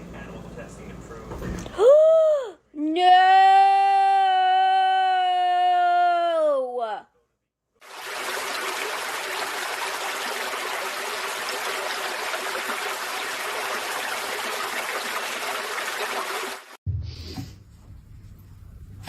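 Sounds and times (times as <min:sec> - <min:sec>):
running tap water: 0:07.8 - 0:16.8.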